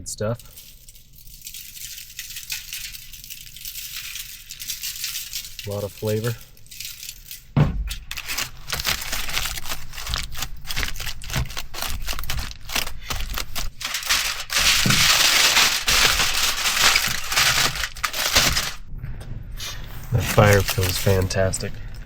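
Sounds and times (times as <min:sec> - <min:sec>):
aluminium foil crinkling: 0:00.2 - 0:18.8, 0:19.9 - 0:22.0.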